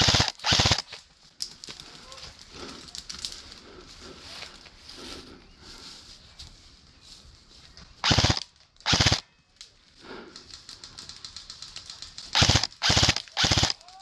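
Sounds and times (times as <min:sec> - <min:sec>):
airsoft rifle firing bursts: 0:00.0 - 0:00.9, 0:08.0 - 0:09.2, 0:12.3 - 0:14.0.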